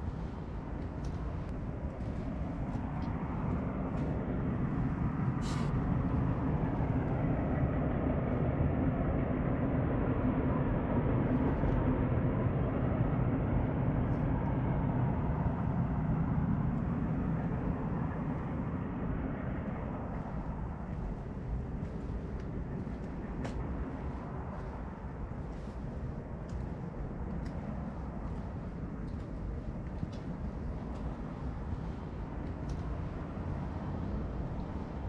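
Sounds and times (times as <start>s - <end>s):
distant vehicle rumble: 0.0s - 7.0s, 15.5s - 35.0s.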